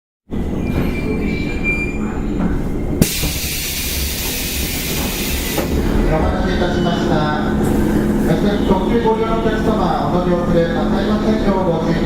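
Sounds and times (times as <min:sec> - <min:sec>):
train wheels rumbling: 0:00.4 - 0:11.4.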